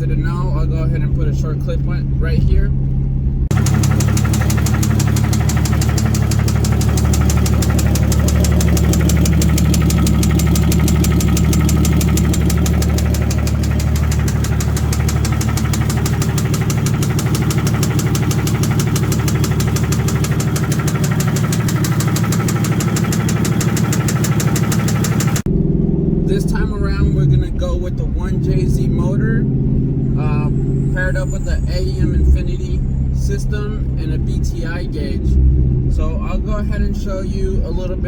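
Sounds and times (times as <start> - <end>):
car engine running: 0.0 - 38.0
engine rod knock: 3.5 - 25.5.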